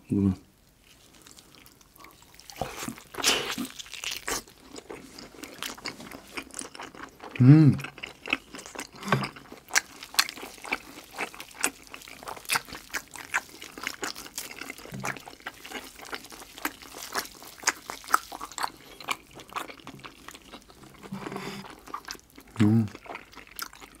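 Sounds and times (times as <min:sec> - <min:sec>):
wet chewing and lip smacks: 0:00.9 - 0:24.0
person humming: 0:22.6 - 0:22.9.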